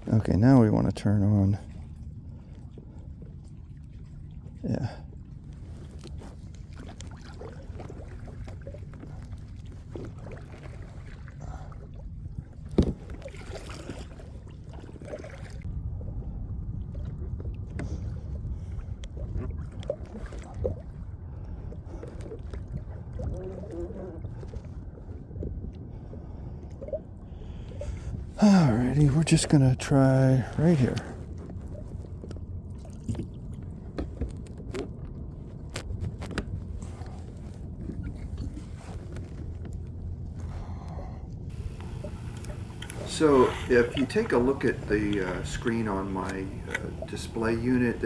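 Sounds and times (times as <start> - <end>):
water rumbling along kayak hull: 0.0 - 48.0
light knocks on kayak: 12.7 - 13.2.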